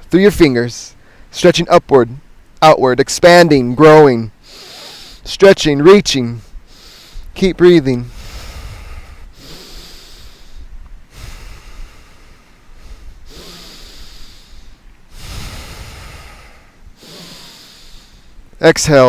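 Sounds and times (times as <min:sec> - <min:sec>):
person breathing deeply: 0:01.0 - 0:01.4, 0:04.4 - 0:05.3, 0:06.4 - 0:07.4, 0:08.0 - 0:18.6.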